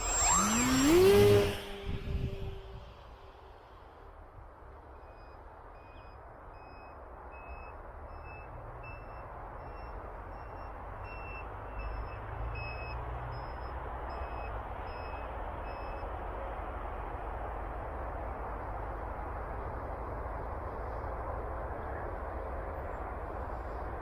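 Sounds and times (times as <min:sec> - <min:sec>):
wind rushing over microphone: 0:00.5 - 0:03.2.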